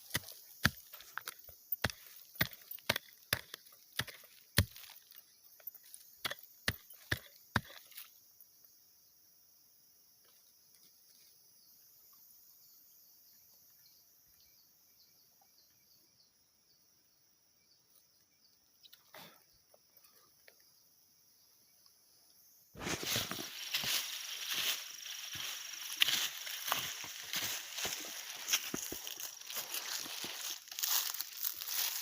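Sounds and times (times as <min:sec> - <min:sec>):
digging tool striking earth: 0:00.0 - 0:05.2, 0:05.9 - 0:08.0
high-pitched insect chorus: 0:00.0 - 0:32.0.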